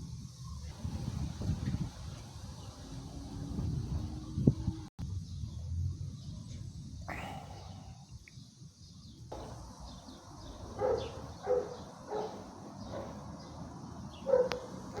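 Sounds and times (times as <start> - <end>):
faint birdsong: 3.9 - 15.0.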